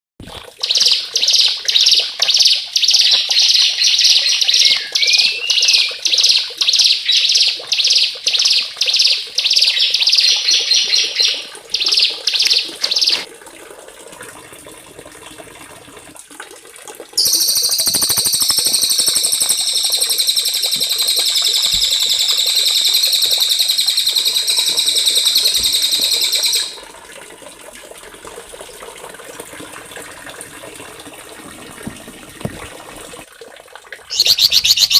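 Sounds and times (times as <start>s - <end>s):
faint watery background: 0.2s - 34.9s
songbird singing: 0.6s - 13.2s, 17.2s - 26.8s, 34.1s - 34.9s.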